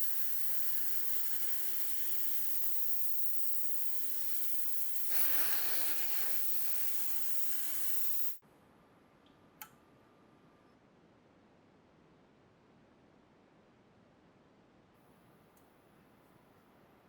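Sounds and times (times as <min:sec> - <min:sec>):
steady hissing: 0:00.0 - 0:08.4.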